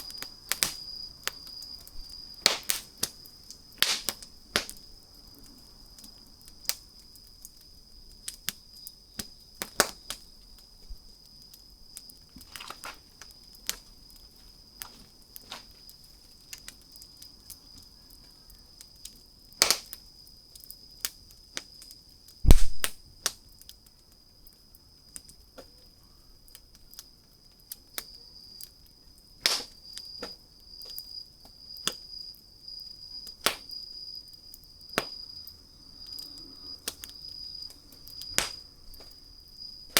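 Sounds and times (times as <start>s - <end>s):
wood fire crackling: 0.0s - 39.9s
dull low thump: 22.5s - 23.0s.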